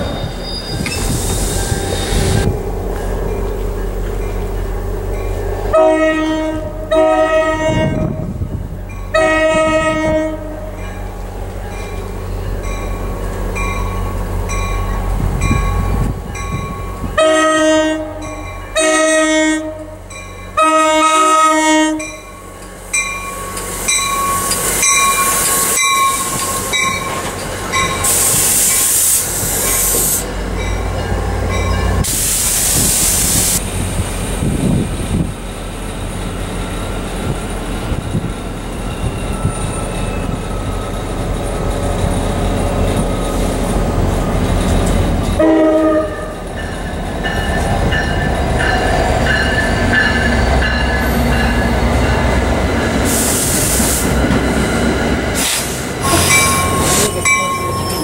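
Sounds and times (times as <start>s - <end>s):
train wheel squeal: 0.0s - 4.5s, 22.4s - 33.5s, 36.7s - 58.0s
rushing of passing train cars: 0.0s - 58.0s
train horn blasts: 5.7s - 8.4s, 9.1s - 10.8s, 17.1s - 22.3s, 45.4s - 46.4s.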